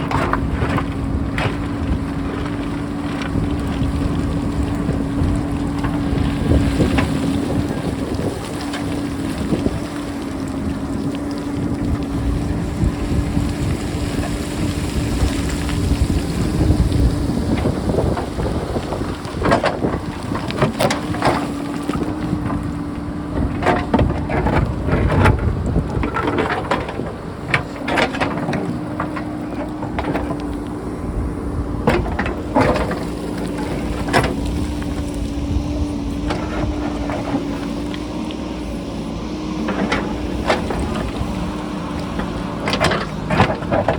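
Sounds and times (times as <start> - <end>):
rocks clattering: 0.0 - 38.4
diesel engine humming: 0.0 - 43.9
wind buffeting microphone: 0.0 - 43.9.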